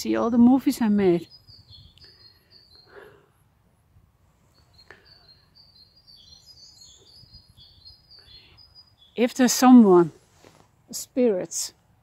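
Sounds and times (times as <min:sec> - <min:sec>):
small bird chirping: 0:00.0 - 0:03.4, 0:04.4 - 0:10.1.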